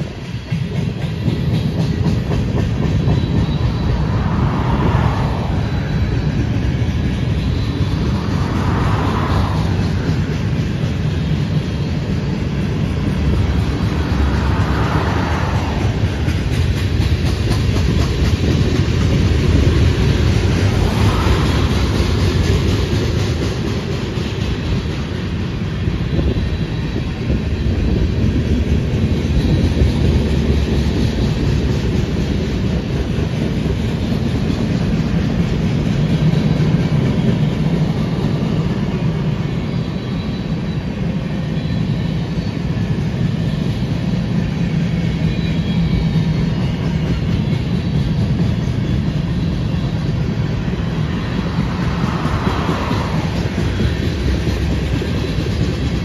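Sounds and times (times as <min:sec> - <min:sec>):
steel wheels rolling on rails: 0:00.0 - 0:56.0.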